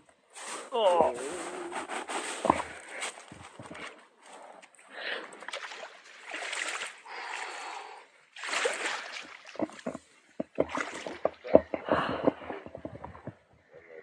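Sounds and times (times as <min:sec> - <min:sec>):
water splashing: 0:04.8 - 0:12.6.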